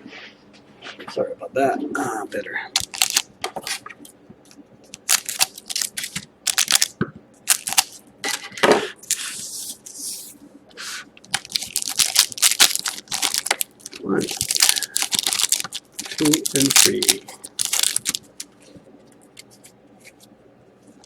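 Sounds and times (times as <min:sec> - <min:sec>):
foil wrappers crinkling: 0:02.7 - 0:03.9, 0:04.8 - 0:09.9, 0:11.2 - 0:20.3
louder wrapper rustle: 0:02.8 - 0:03.9, 0:04.9 - 0:08.0, 0:11.3 - 0:18.7.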